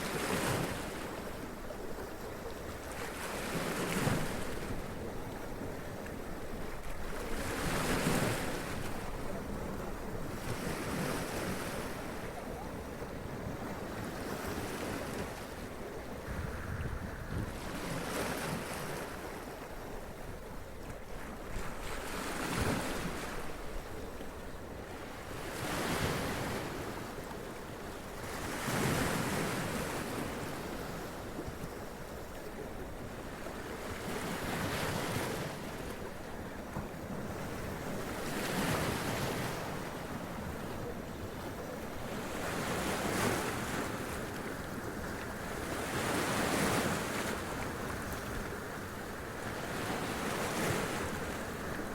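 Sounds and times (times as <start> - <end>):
surf washing: 28.0 - 51.9.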